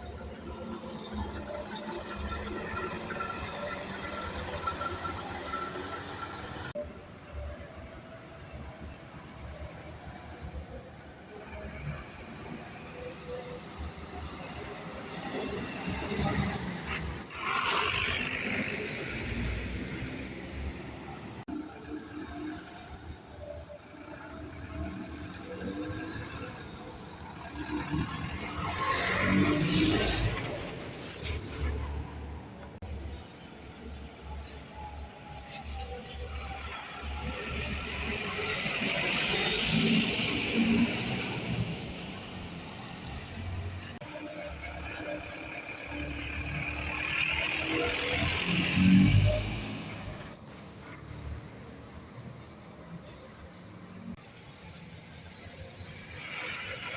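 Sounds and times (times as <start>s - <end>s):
bus engine running: 0.0s - 7.1s
bus engine rumbling: 0.0s - 56.9s.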